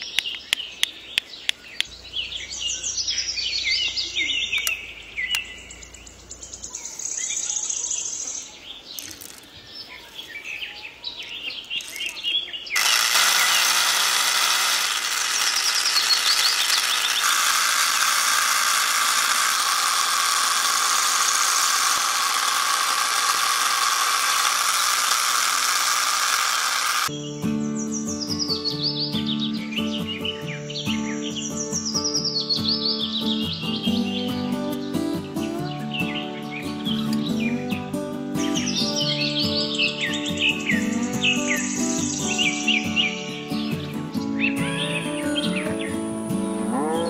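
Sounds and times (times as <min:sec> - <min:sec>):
birds chirping: 0:00.0 - 0:47.0
steady rushing hiss: 0:12.8 - 0:27.1.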